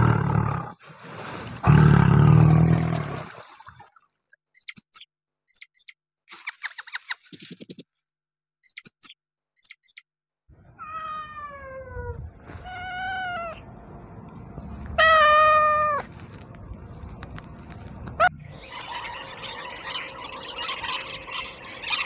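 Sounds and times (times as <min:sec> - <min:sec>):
kitten meowing: 0:15.0 - 0:16.1
rabbit crunching dry leaf: 0:15.6 - 0:18.2.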